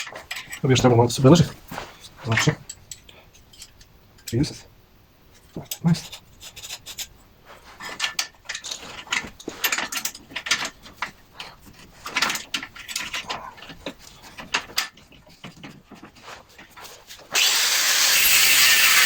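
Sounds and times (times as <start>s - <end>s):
metal tools clicking and scraping: 0.0s - 0.6s, 2.0s - 4.6s, 5.4s - 7.2s, 7.8s - 17.5s.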